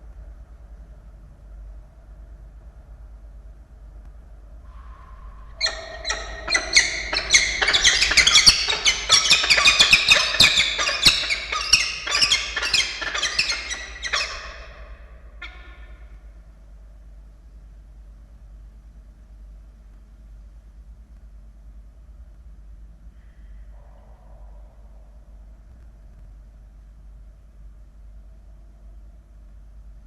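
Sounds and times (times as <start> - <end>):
falcons calling harshly: 5.6 - 16.0.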